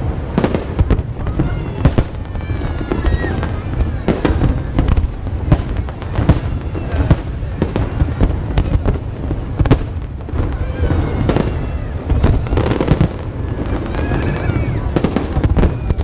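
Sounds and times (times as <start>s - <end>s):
faint voices of onlookers: 0.0s - 16.0s
fireworks bangs and pops: 0.0s - 16.0s.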